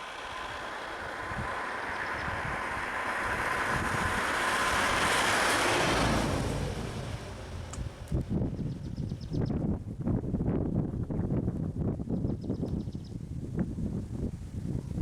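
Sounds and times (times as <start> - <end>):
road vehicle passing by: 0.0 - 8.4.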